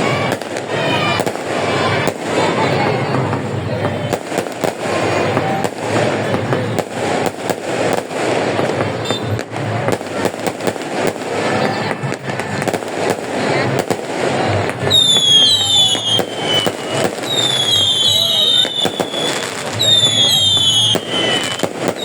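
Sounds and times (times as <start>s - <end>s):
fireworks banging and crackling: 0.0s - 22.0s
people talking and calling out: 0.0s - 22.0s
high falling whistles: 15.0s - 21.6s.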